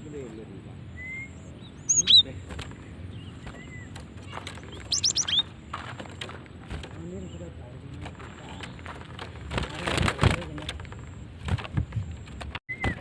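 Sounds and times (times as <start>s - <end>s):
bird sharp high chirp: 0.9s - 2.5s, 4.6s - 5.5s.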